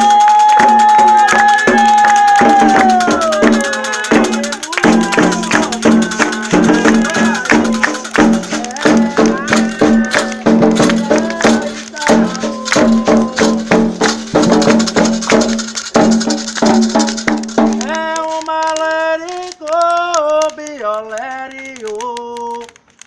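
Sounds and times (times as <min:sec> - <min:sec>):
people chanting: 0:00.0 - 0:15.7
rattles and percussion: 0:00.0 - 0:23.0.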